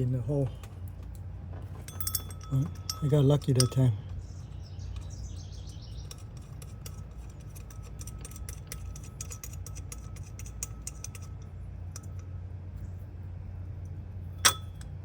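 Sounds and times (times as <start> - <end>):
steady low hum: 0.0 - 15.0
metallic clicks of hand tools: 6.0 - 11.4.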